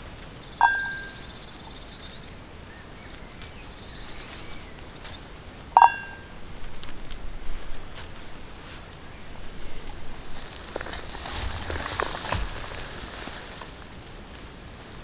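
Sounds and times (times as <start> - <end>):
small birds chirping: 0.0 - 14.5
sharp metallic clink: 0.6 - 1.4, 5.8 - 6.4.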